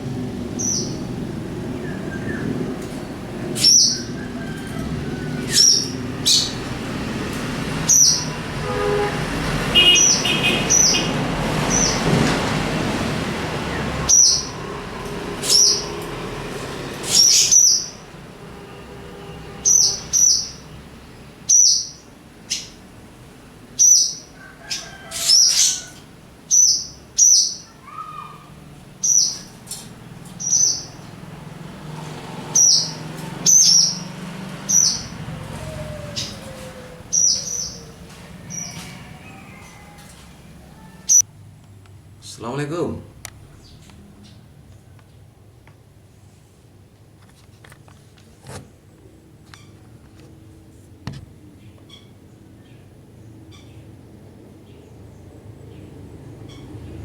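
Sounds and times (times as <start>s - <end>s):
swallows giving sharp alarm calls: 0.5s - 4.1s, 5.3s - 6.8s, 7.8s - 8.4s, 9.8s - 12.0s, 14.0s - 14.6s, 15.4s - 16.0s, 17.0s - 18.1s, 19.6s - 20.8s, 21.4s - 22.8s, 23.7s - 31.5s, 32.4s - 39.7s, 41.0s - 41.2s.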